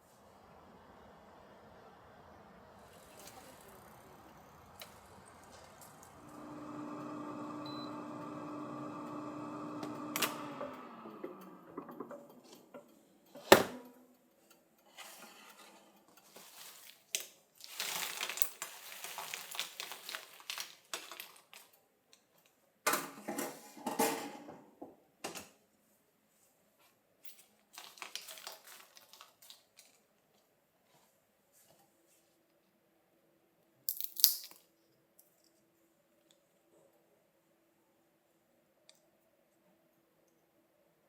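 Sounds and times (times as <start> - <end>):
dishes and containers clattering: 23.1 - 24.6.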